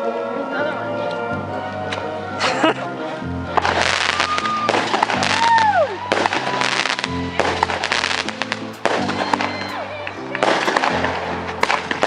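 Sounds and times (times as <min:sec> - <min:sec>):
music: 0:00.0 - 0:12.0
fireworks crackling and banging: 0:03.5 - 0:12.0
falling firework whistle: 0:03.8 - 0:11.1.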